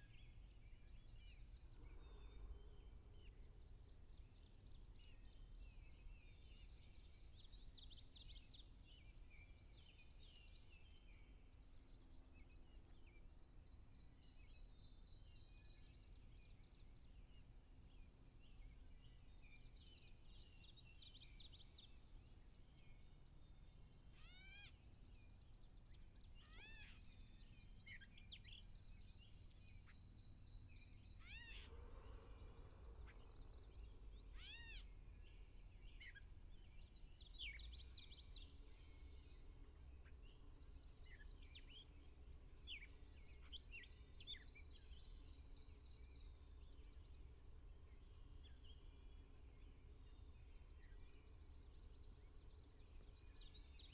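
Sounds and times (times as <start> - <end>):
birdsong trills and mewing calls: 0.0 - 53.9
low outdoor rumble: 28.8 - 40.0.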